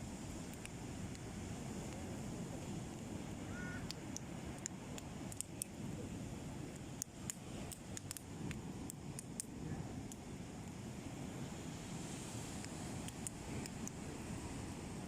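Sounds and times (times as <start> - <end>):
wind: 0.0 - 15.0
bonfire crackling and popping: 0.2 - 3.2, 3.8 - 10.9, 12.5 - 14.1.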